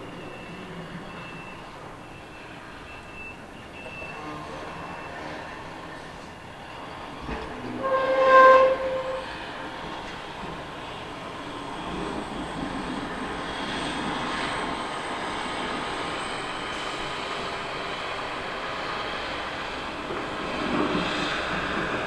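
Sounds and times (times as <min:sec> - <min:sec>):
truck horn blast: 0:07.8 - 0:09.7.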